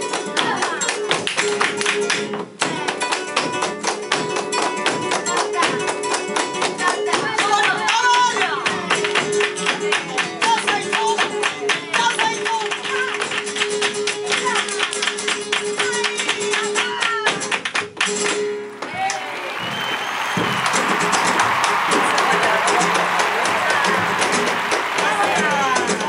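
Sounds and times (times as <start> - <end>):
acoustic guitar: 0.0 - 18.8
rapid percussive strikes: 20.3 - 26.0.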